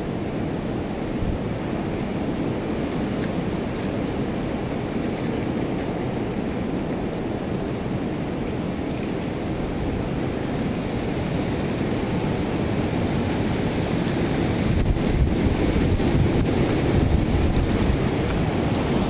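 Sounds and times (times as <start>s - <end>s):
wind buffeting microphone: 9.6s - 19.0s
storm wind rushing: 12.0s - 19.0s.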